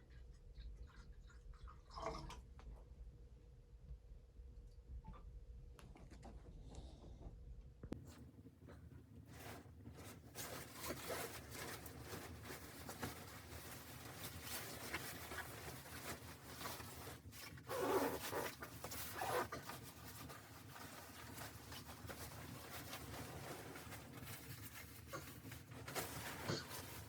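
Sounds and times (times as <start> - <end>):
rustling and scraping: 8.0 - 27.0.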